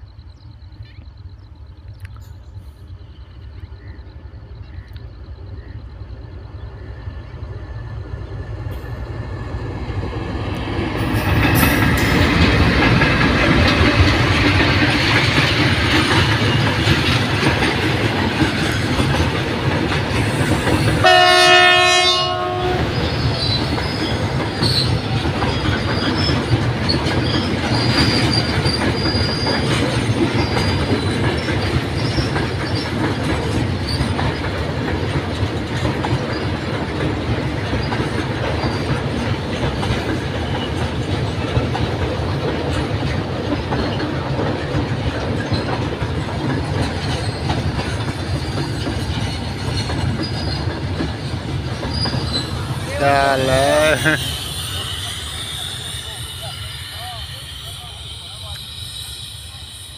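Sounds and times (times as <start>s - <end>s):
train wheels rumbling and clattering: 0.0s - 59.9s
train horn: 21.0s - 23.2s, 53.2s - 59.9s
high-pitched wheel squeals: 21.3s - 33.0s, 51.8s - 59.9s.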